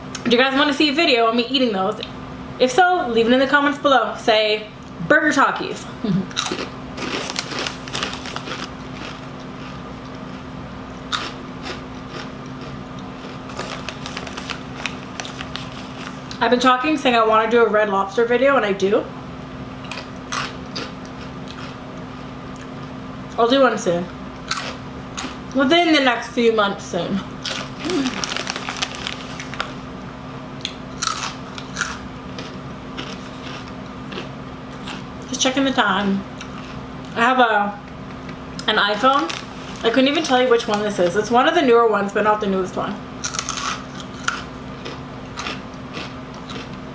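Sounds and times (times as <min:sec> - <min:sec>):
crunching chips: 0:06.3 - 0:16.4, 0:19.8 - 0:21.8, 0:24.5 - 0:25.4, 0:27.4 - 0:29.9, 0:30.6 - 0:35.1, 0:38.6 - 0:40.9, 0:43.2 - 0:46.8.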